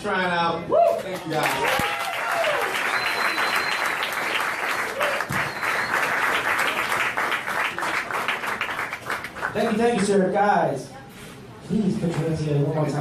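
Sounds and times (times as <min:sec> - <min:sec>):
cheers: 0:00.7 - 0:06.3
audience applauding: 0:01.0 - 0:10.0.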